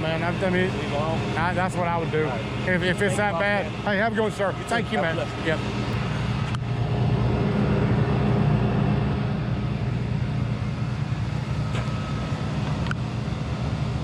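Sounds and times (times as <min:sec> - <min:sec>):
truck engine droning: 0:00.0 - 0:14.0.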